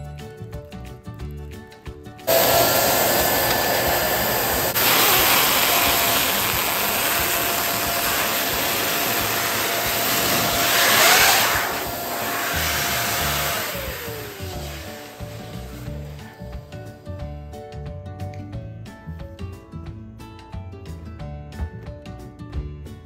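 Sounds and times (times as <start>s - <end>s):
balloon pump motor whine: 2.3s - 17.0s
rush of air: 9.2s - 16.4s.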